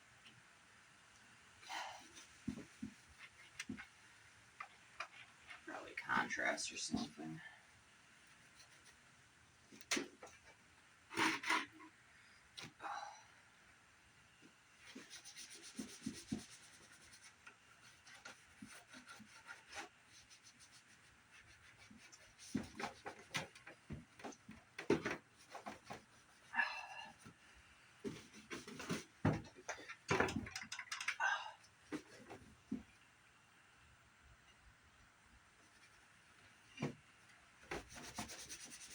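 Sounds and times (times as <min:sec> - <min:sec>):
knocks and clicks of handling: 0:28.7 - 0:31.2.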